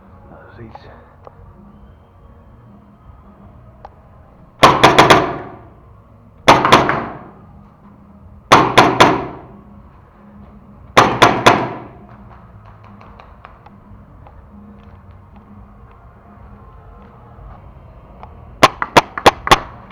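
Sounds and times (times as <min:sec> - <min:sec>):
paintball marker firing: 0:04.6 - 0:05.7, 0:06.4 - 0:07.4, 0:08.5 - 0:09.6, 0:10.9 - 0:13.7, 0:18.6 - 0:19.9.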